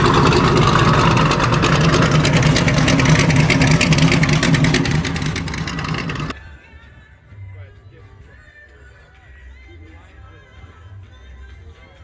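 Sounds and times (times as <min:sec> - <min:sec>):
car engine with loud exhaust: 0:00.0 - 0:06.3.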